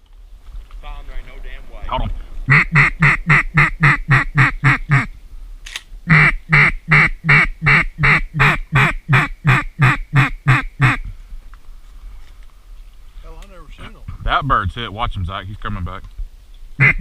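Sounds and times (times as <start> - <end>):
duck call quacks: 2.5 - 5.1, 6.1 - 11.0, 16.8 - 17.0.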